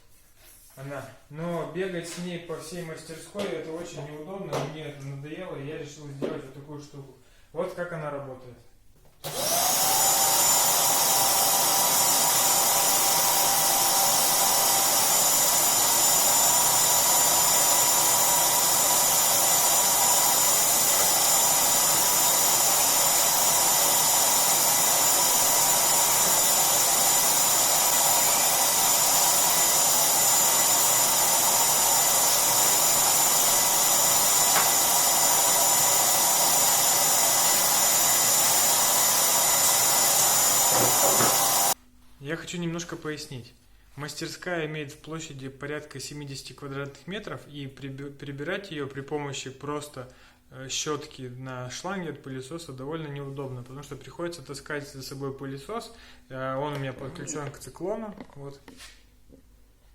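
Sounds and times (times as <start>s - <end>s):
shop vacuum running: 9.2s - 41.8s.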